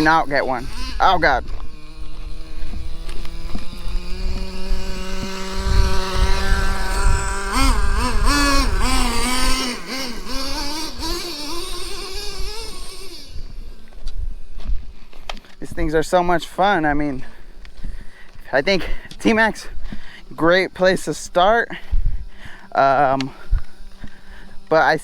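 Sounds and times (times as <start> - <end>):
nitro engine revving: 0.0 - 14.6.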